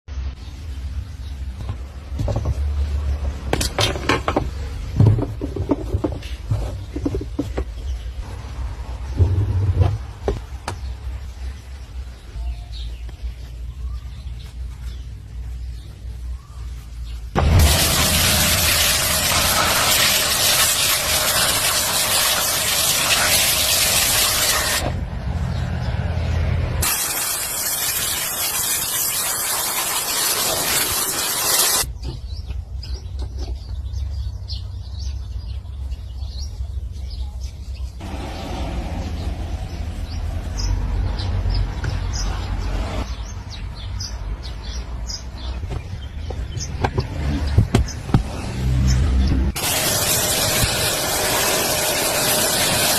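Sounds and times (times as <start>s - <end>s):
small birds chirping: 0.1s - 3.4s, 4.3s - 8.3s, 8.9s - 17.4s, 31.4s - 51.6s
loud rushing hiss: 17.4s - 25.0s, 26.8s - 31.9s, 49.5s - 52.9s.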